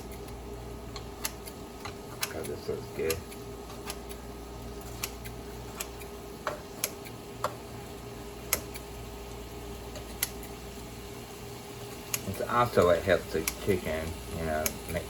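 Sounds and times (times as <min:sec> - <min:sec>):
kitchen shears snipping: 0:00.0 - 0:04.2, 0:04.8 - 0:07.6, 0:09.9 - 0:10.6, 0:12.0 - 0:15.0
steady hum: 0:00.0 - 0:15.0.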